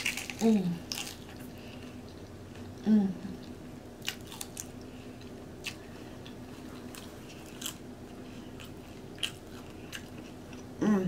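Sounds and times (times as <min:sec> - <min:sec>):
chips being crunched: 0:00.0 - 0:01.2
faint steady hum: 0:00.0 - 0:11.0.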